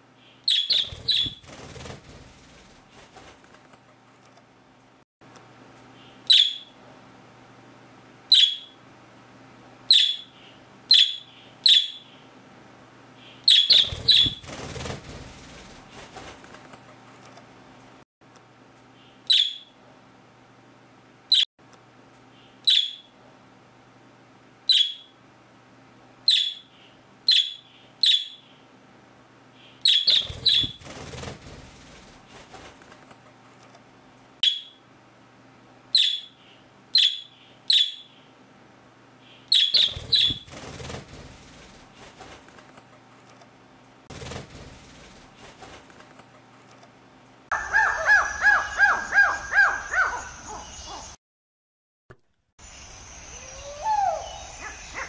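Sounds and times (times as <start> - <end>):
parrots calling: 47.5 - 51.2, 53.4 - 55.0.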